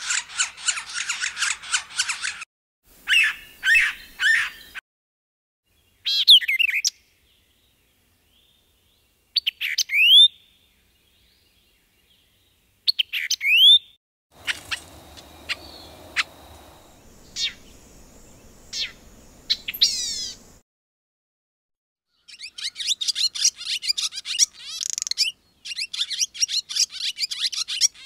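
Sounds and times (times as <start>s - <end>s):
bird singing sharp notes: 14.4s - 20.4s
faint background hiss: 14.4s - 20.6s.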